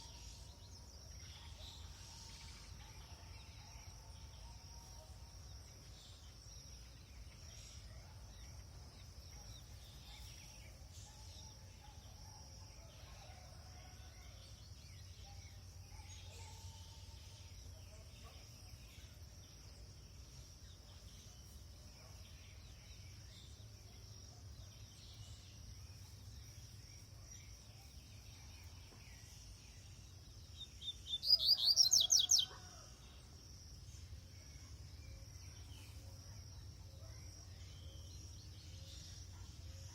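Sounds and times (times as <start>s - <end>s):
faint bird chirps: 20.9s - 33.2s.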